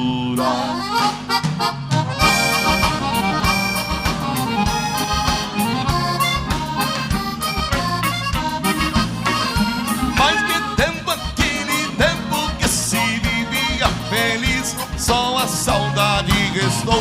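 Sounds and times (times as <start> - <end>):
accordion playing: 0.4 - 16.7
bass and drum beat: 0.4 - 17.0
person singing: 10.1 - 17.0.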